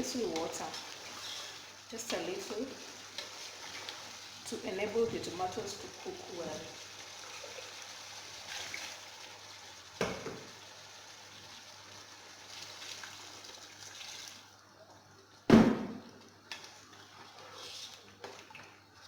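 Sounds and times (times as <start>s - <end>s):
water pouring into pot: 0.0s - 15.1s.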